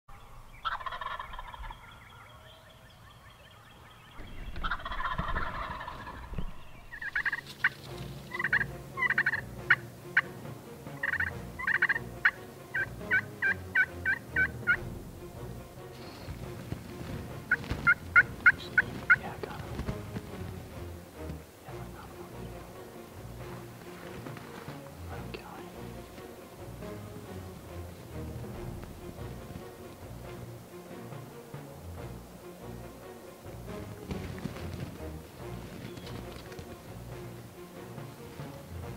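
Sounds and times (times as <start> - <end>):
turkey gobbling: 0.1 - 15.1, 15.8 - 30.3, 33.4 - 37.0
turkey yelping: 0.2 - 10.3, 11.0 - 14.9, 17.4 - 19.9.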